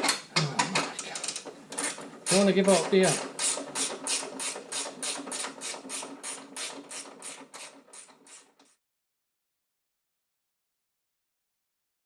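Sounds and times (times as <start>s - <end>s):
ratchet wrench clicking: 3.2s - 8.5s.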